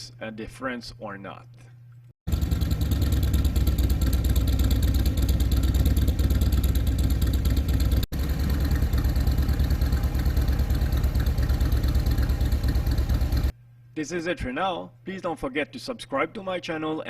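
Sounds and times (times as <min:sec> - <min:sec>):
motorcycle engine idling: 0:02.3 - 0:13.5.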